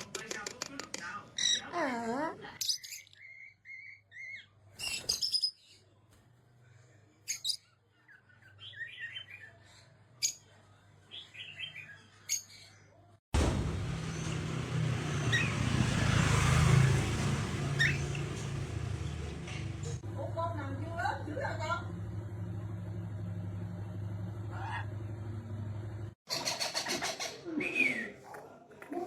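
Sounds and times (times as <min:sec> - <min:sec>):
parrot chirping and squawking: 0:01.4 - 0:05.6, 0:17.6 - 0:19.6, 0:24.4 - 0:25.1, 0:26.3 - 0:28.2
low hum: 0:18.6 - 0:26.2.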